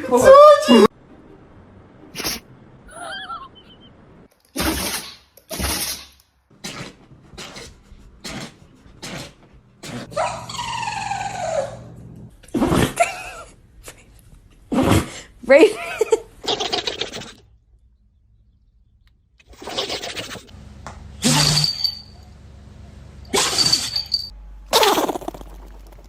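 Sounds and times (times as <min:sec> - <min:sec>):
dog sneezing: 0:02.2 - 0:02.4, 0:04.6 - 0:10.3.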